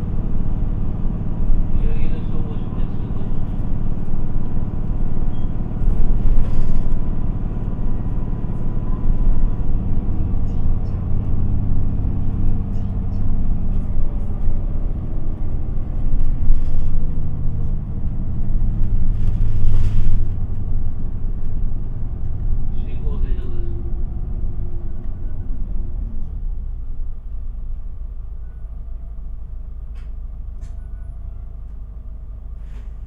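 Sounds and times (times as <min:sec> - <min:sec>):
bus diesel engine droning: 0:00.0 - 0:33.0
road rumble: 0:00.0 - 0:33.0.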